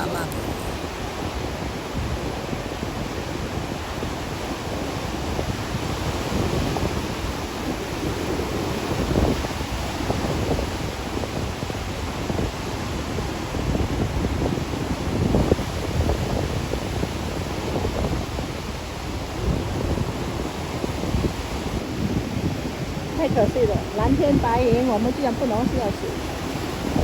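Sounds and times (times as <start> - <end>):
heavy surf breaking: 0.0 - 27.0
wind buffeting microphone: 0.0 - 27.0.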